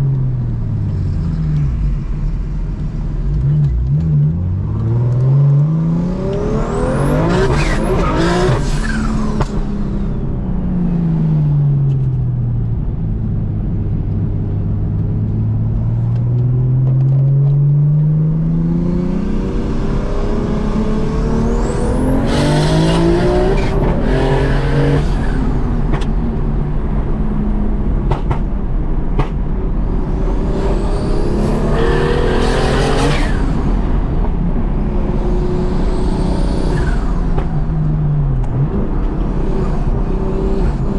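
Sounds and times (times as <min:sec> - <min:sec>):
car engine revving through gears: 0:03.2 - 0:10.2, 0:15.7 - 0:28.5, 0:29.2 - 0:40.9.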